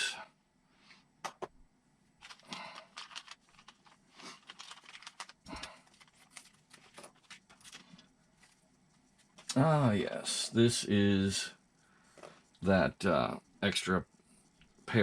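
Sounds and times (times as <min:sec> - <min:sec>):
plastic bags crinkling: 0:02.2 - 0:08.6.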